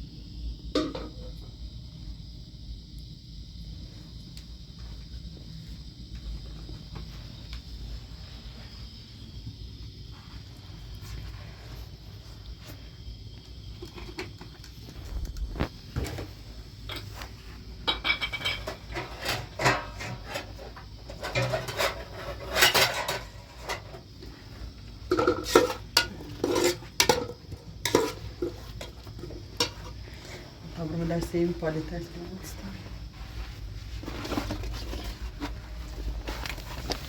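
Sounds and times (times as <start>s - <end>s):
dishes and utensils clinking: 17.9s - 20.5s, 21.2s - 23.9s, 25.1s - 29.0s.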